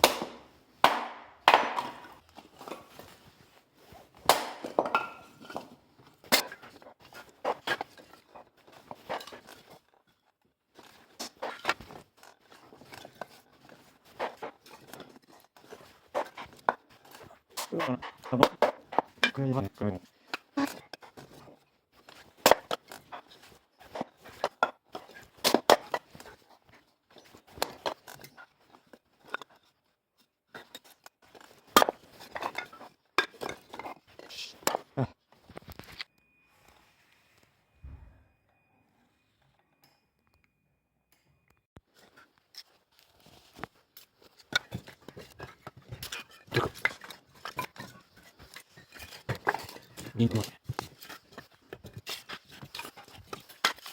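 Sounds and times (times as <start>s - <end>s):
firewood knocking together: 0.0s - 2.8s, 4.2s - 5.7s
firewood knocking and clattering: 0.0s - 3.2s, 4.1s - 9.8s.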